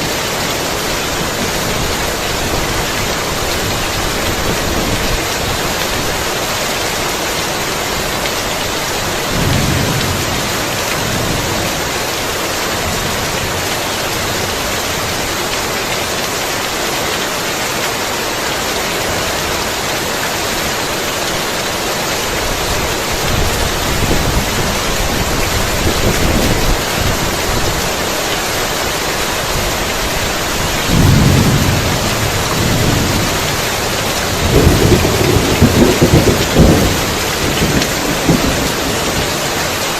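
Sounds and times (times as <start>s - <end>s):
heavy rain pouring: 0.0s - 39.9s
thunder rumbling: 8.6s - 12.0s, 29.3s - 39.5s.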